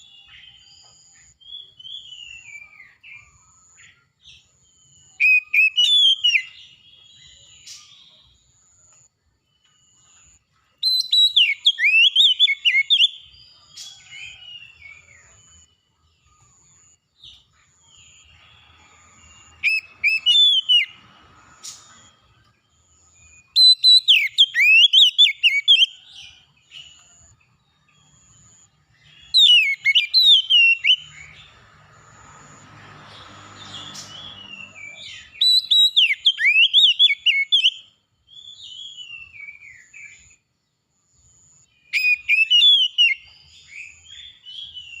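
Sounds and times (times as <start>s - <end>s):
songbird singing: 0.0s - 45.0s.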